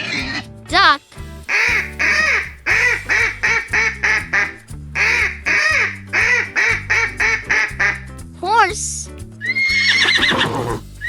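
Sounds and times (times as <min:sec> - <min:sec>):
cheerful backing music: 0:00.0 - 0:11.0
duck quacking: 0:01.5 - 0:08.1.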